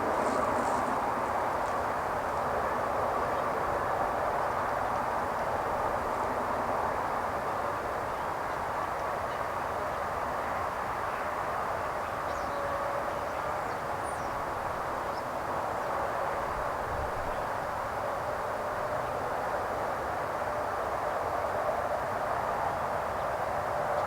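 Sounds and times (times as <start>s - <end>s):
constant rushing hiss: 0.0s - 9.2s.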